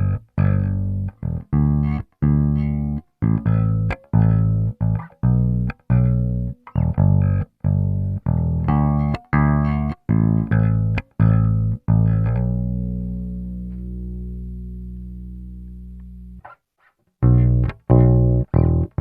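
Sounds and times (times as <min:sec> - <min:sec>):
electric bass plucked notes: 0:00.0 - 0:16.6, 0:17.2 - 0:19.0.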